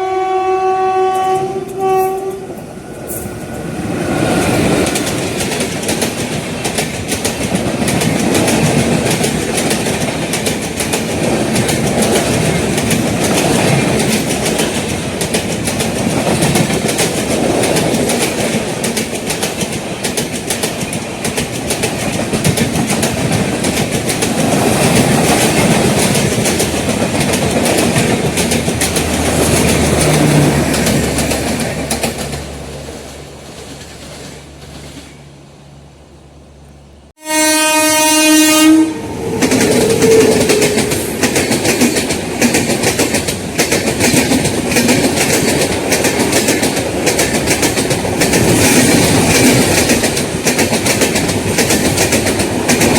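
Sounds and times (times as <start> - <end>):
train coaches rumbling: 0.0 - 52.9
wheels clattering over rail joints: 4.4 - 35.3.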